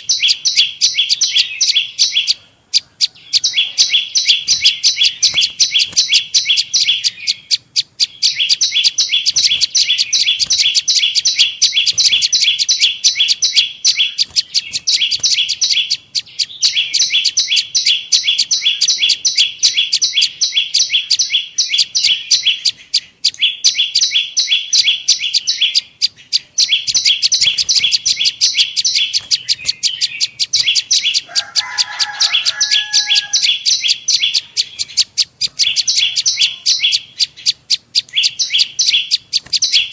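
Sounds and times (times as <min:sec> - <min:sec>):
bird sharp high chirps: 0:00.0 - 0:39.9.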